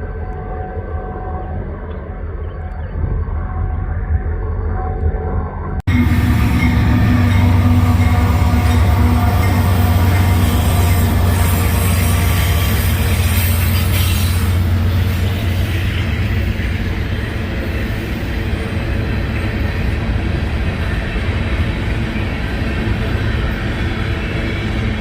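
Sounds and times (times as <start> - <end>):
freight train rumbling past: 5.8 - 25.0
train wheels hissing: 6.0 - 18.5.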